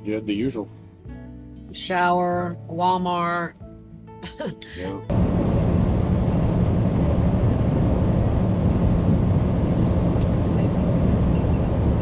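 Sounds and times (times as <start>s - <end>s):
truck engine hum: 4.8s - 12.0s
road noise: 5.1s - 12.0s.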